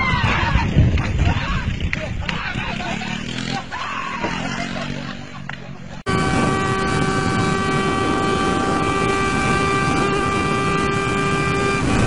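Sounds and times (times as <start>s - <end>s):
wind and road noise: 0.0s - 12.0s
motorcycle engine at high revs: 2.6s - 5.4s, 6.0s - 12.0s.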